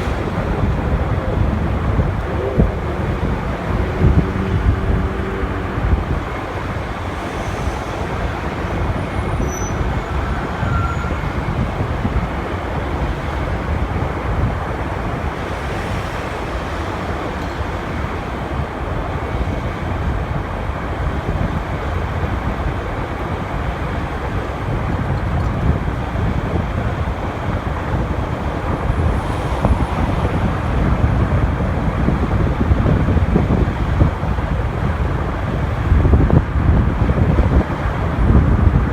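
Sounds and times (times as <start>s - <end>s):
motorcycle engine: 0.0s - 7.1s
city traffic: 0.0s - 38.9s
wind and road noise: 0.0s - 38.9s.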